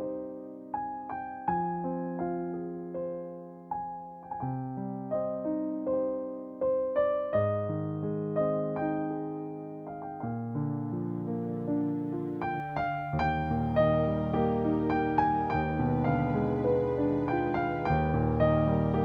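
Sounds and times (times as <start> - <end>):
soft slow piano melody: 0.0 - 19.0.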